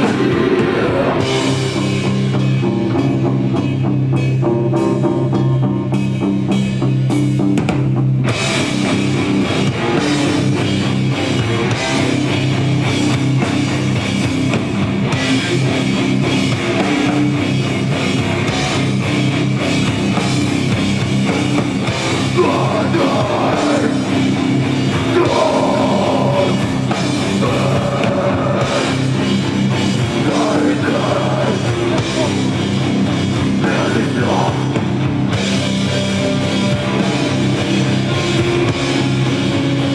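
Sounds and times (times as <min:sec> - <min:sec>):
drum kit: 0:00.0 - 0:39.9
guitars: 0:00.0 - 0:39.9.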